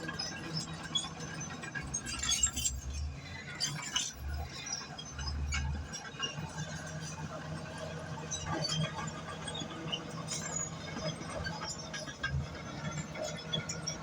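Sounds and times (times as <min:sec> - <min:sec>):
bulldozer tracks clinking and squeaking: 0:00.0 - 0:14.0.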